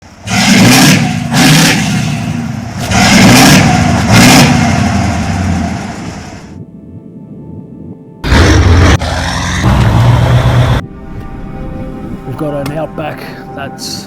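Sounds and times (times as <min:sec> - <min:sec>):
diesel truck engine revving: 0:00.0 - 0:06.5, 0:08.2 - 0:11.4.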